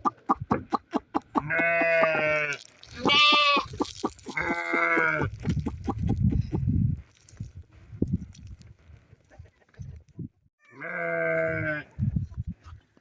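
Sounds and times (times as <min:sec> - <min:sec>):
livestock bleating: 0:01.4 - 0:03.8, 0:04.4 - 0:05.3, 0:10.7 - 0:11.9.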